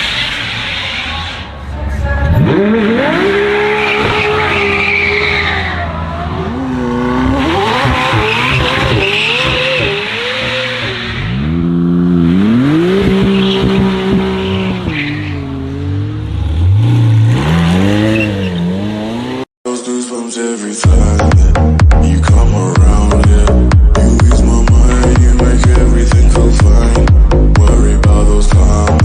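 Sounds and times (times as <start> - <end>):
car engine revving hard: 2.2 - 19.5
tyre squeal: 2.4 - 6.7, 7.3 - 11.5, 17.2 - 19.2.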